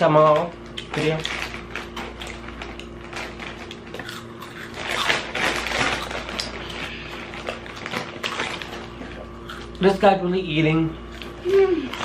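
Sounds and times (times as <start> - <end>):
faint steady hum: 0.0 - 12.0
chewing crunchy snacks: 0.6 - 9.8.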